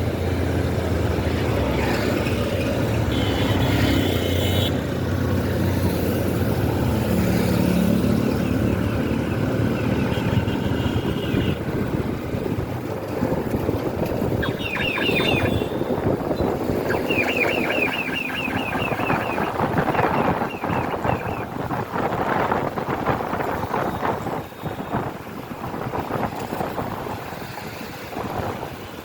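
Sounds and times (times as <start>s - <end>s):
traffic noise: 0.0s - 29.0s
motorcycle engine: 12.8s - 21.5s.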